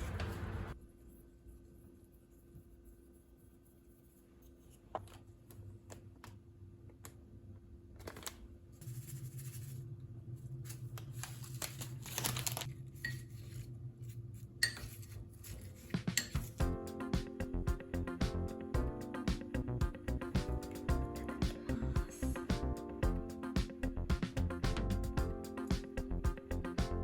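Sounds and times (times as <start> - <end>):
dishes and utensils clinking: 14.6 - 16.6
low steady hum: 16.4 - 25.4.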